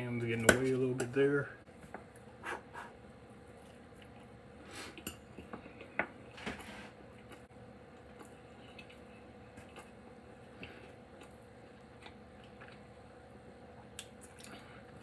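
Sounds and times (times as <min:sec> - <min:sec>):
quiet chewing: 0:02.1 - 0:06.0, 0:07.1 - 0:13.0, 0:13.7 - 0:15.0
soft sniffs: 0:04.6 - 0:05.0.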